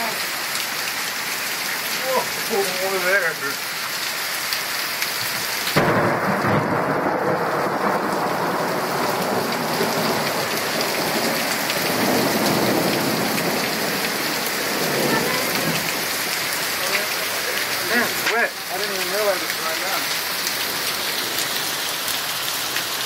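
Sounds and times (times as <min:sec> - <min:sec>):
heavy rain hissing: 0:00.0 - 0:23.0
thunder rolling: 0:05.8 - 0:16.1.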